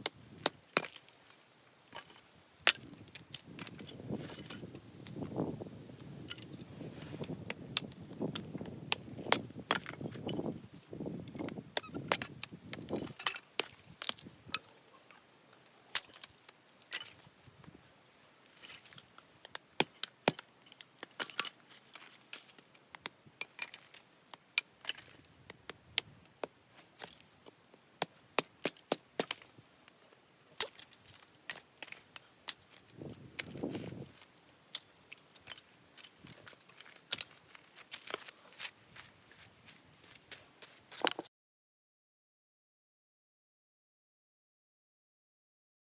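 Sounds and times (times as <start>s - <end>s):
hatchet splitting firewood: 0.0s - 1.3s, 7.2s - 10.5s, 11.3s - 14.7s, 18.6s - 30.0s.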